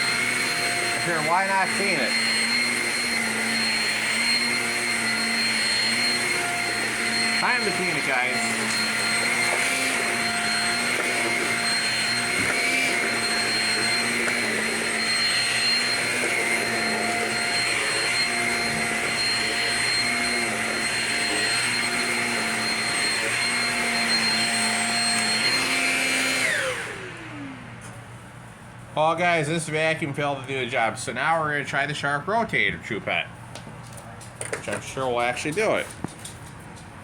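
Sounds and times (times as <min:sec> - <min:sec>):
vacuum cleaner motor whine: 0:00.0 - 0:28.1.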